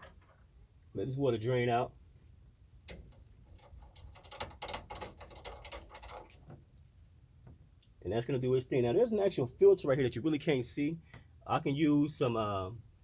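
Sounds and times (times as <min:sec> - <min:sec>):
drain plug clicking and scraping: 0:02.8 - 0:06.6.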